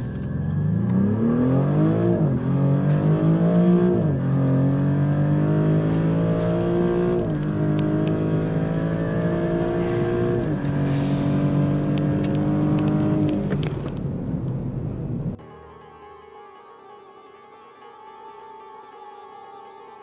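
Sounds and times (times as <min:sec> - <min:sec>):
car engine accelerating: 0:00.0 - 0:15.4.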